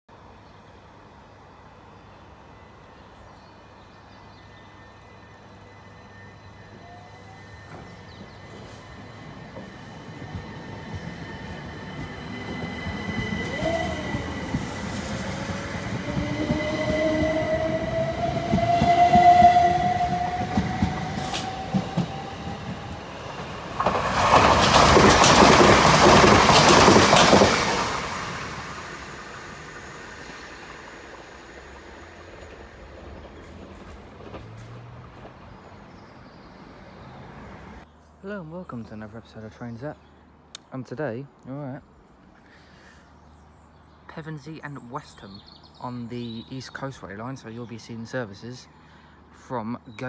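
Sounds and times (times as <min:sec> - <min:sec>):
rush of train noise: 0:00.2 - 0:37.8
wheels clattering on rails: 0:11.9 - 0:28.1, 0:32.3 - 0:35.8.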